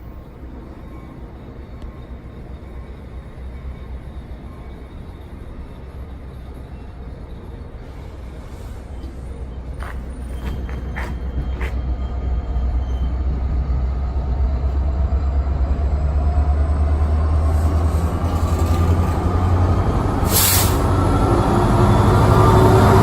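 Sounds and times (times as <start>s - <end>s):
train rumbling past: 0.0s - 23.0s
short burst of hiss: 20.2s - 20.9s.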